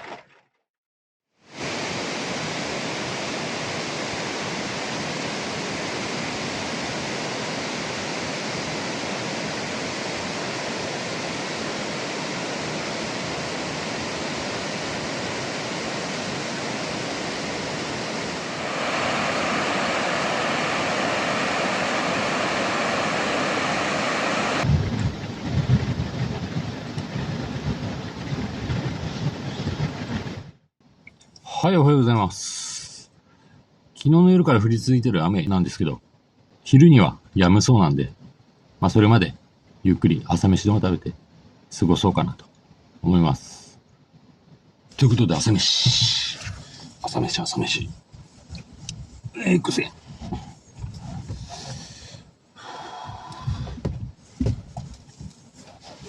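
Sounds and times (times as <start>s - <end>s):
heavy rain pouring: 1.5s - 30.4s.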